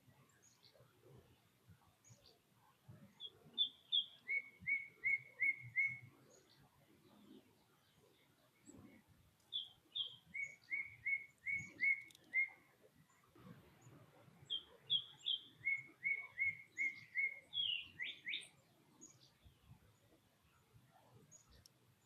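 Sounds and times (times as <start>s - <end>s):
songbird singing: 0.0s - 22.0s.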